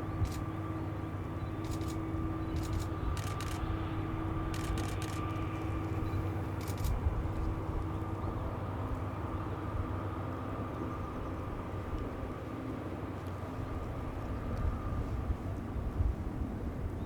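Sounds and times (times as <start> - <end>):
locomotive engine drone: 0.0 - 17.0
sharp clicks: 1.6 - 2.0, 2.6 - 3.7, 4.5 - 5.7.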